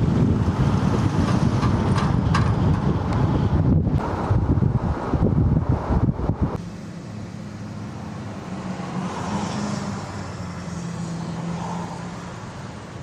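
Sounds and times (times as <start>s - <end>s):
wind buffeting microphone: 0.0s - 6.6s
car engine hum: 0.0s - 13.0s
road noise: 0.0s - 13.0s.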